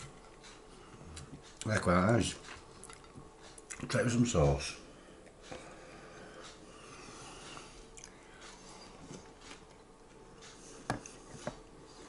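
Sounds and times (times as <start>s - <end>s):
person chewing: 7.5s - 8.2s.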